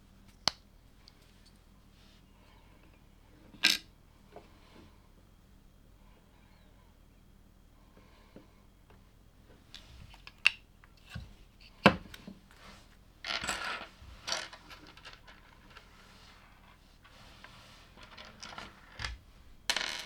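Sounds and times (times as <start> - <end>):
loose plastic pieces rattling: 13.3 - 15.9.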